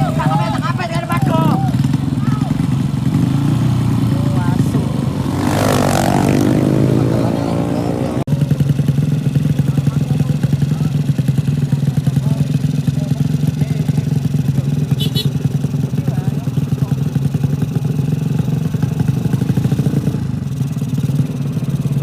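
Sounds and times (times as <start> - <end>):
motorcycle passing by: 0.0 - 8.4
motorcycle engine running choppy exhaust: 0.0 - 22.0.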